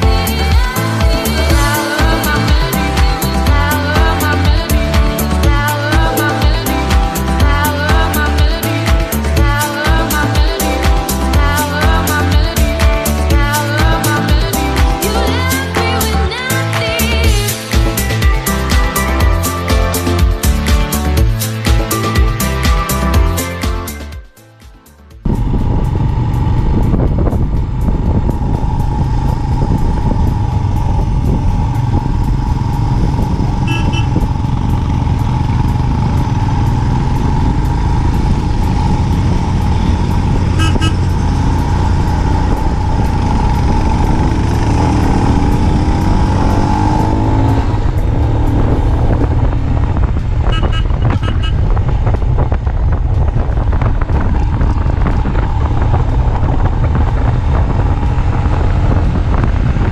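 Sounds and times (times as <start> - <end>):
motorcycle engine running: 0.0 - 24.3, 25.1 - 59.9
road rumble: 0.0 - 59.9
wind noise: 25.2 - 59.9.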